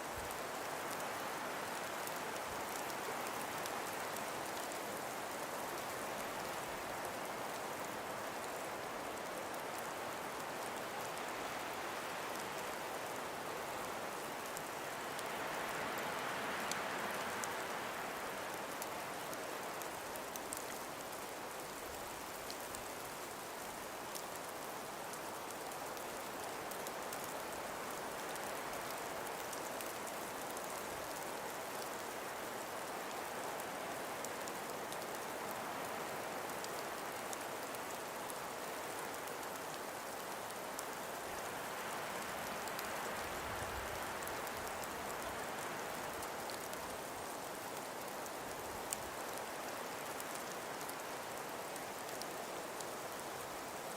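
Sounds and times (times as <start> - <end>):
faint ticks: 18.4 - 53.9.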